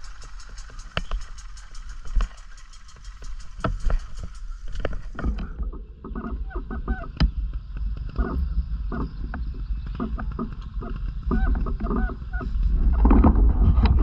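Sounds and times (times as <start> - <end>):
fast even ticking: 0.0 - 5.5
wind rumble on microphone: 0.0 - 14.0.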